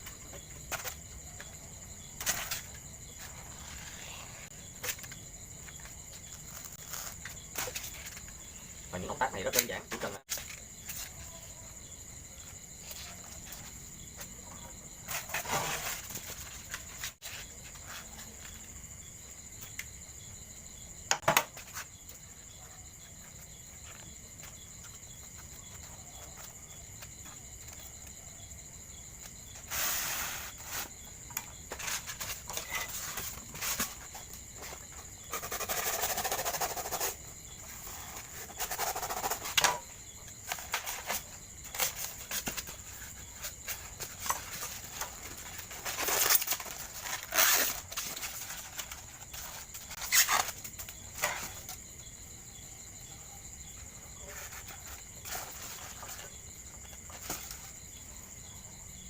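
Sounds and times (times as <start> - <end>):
styrofoam rustling and scraping: 15.1 - 18.3, 29.6 - 39.8, 40.4 - 51.7.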